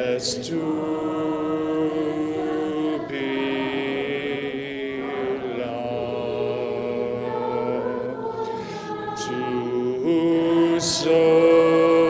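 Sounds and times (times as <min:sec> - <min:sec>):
congregation singing a hymn: 0:00.0 - 0:12.0.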